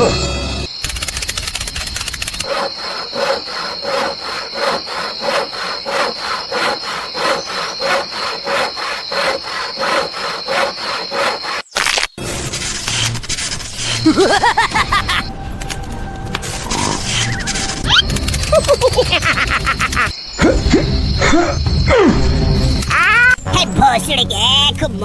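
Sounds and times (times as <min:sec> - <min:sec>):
hand saw strokes: 0:01.3 - 0:11.7.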